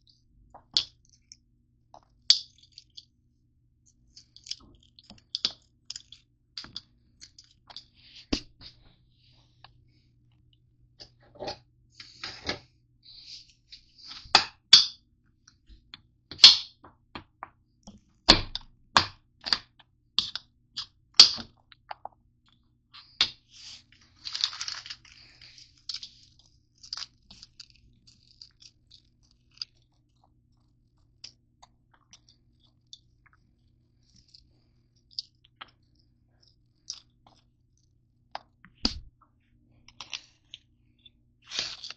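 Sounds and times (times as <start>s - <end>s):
faint low hum: 0.0s - 41.9s
wrapper rustle: 23.6s - 28.6s
granola bars cracking: 24.2s - 30.2s.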